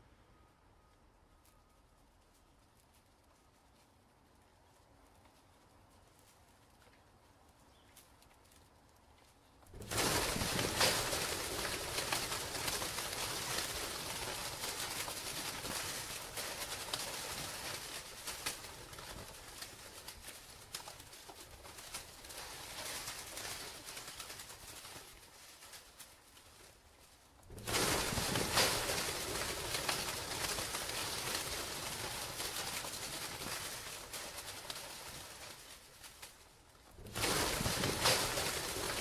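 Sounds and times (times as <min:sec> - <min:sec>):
pigeons rustling and clattering: 0:09.4 - 0:39.0.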